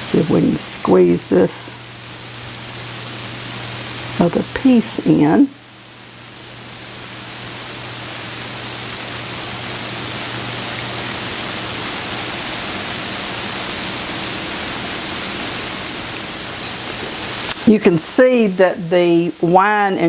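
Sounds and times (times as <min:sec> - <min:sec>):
low steady hum: 0:00.0 - 0:20.0
skillet sizzling: 0:00.0 - 0:20.0.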